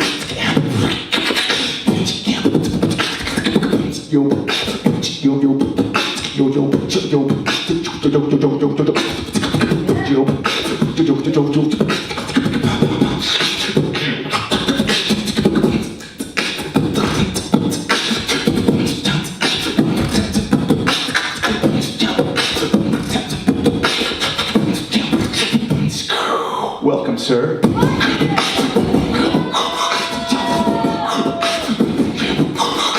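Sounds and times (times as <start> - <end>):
beatboxing: 0.0 - 32.9
pitched vocal line: 6.4 - 11.8, 26.1 - 32.9.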